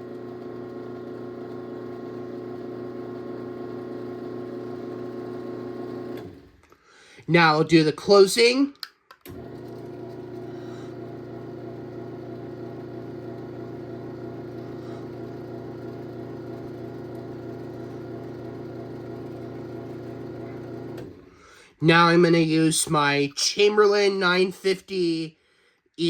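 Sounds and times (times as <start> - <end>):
garage door opener motor humming: 0.0 - 6.6, 9.3 - 21.3.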